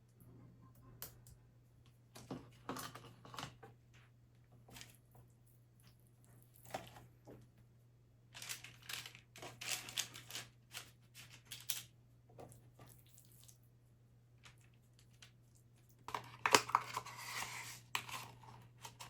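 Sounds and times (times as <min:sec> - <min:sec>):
rustling and crinkling: 0:02.1 - 0:07.7, 0:08.3 - 0:13.6.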